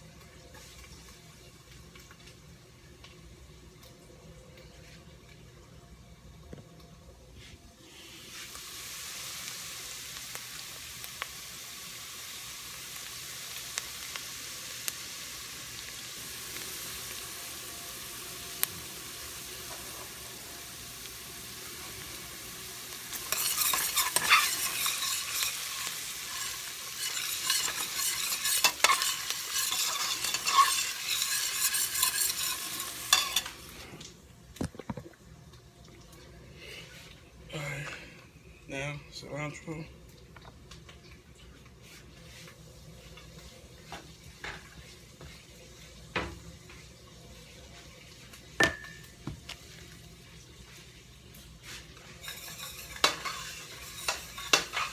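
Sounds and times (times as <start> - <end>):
garlic sizzling in hot oil: 7.8 - 34.0, 41.8 - 54.9
stirring scraping strokes: 23.1 - 33.9, 51.6 - 54.9.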